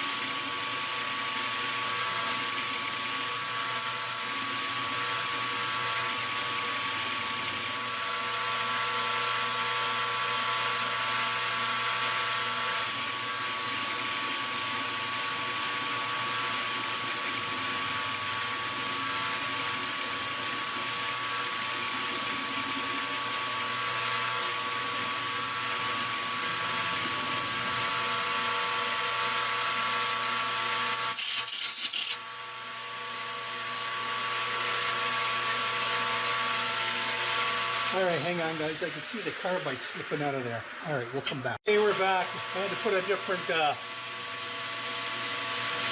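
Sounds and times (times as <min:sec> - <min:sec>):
metal lathe whining: 0:00.0 - 0:32.2, 0:41.8 - 0:45.9.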